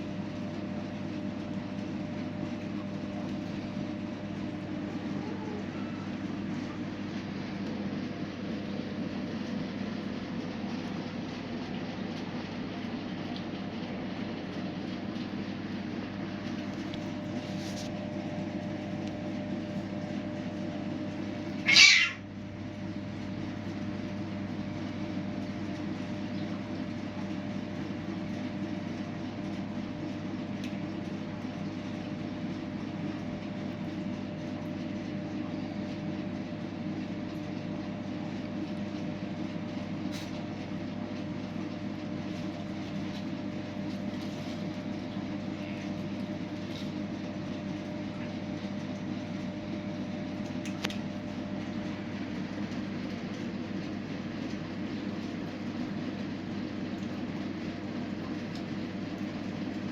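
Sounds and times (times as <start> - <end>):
steady low hum: 0.0 - 59.9
cat meowing: 21.6 - 22.3.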